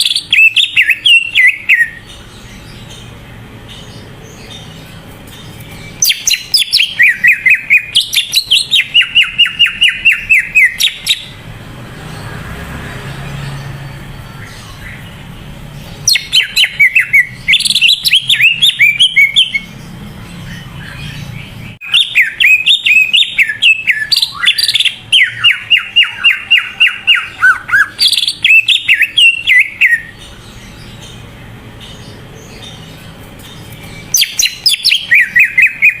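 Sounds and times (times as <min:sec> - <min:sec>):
bird singing whistled notes: 0:00.0 - 0:02.4, 0:05.5 - 0:11.4, 0:16.0 - 0:19.8, 0:20.4 - 0:31.2, 0:31.9 - 0:36.0.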